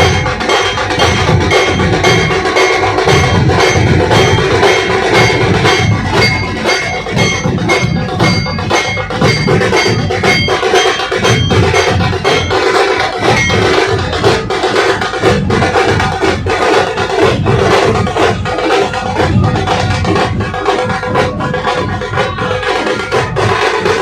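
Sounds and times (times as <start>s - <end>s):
ringing metallic tones: 0.0s - 15.0s
drum troupe drumming: 0.0s - 24.0s.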